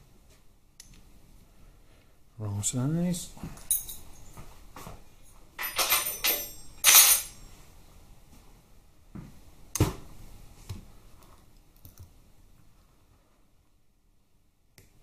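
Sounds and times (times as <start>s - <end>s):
metal spanners clinking: 3.6s - 4.3s, 5.6s - 7.5s.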